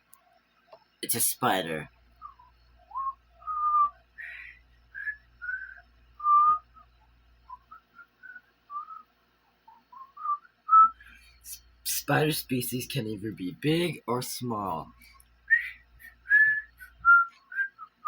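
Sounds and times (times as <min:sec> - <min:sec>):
person whistling a tune: 0:02.2 - 0:06.9, 0:07.5 - 0:09.0, 0:09.7 - 0:11.2, 0:15.5 - 0:18.0.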